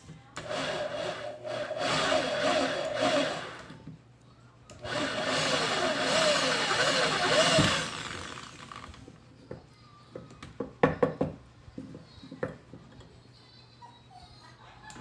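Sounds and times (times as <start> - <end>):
drill press motor running: 0.4 - 3.7, 4.8 - 9.0.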